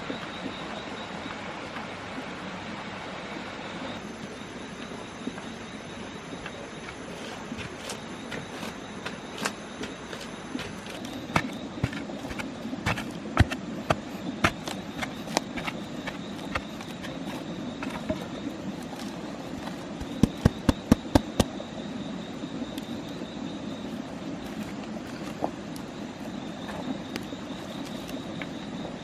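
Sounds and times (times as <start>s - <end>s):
background hum: 0.0s - 29.0s
knife chopping wood: 7.6s - 18.2s, 19.0s - 21.5s.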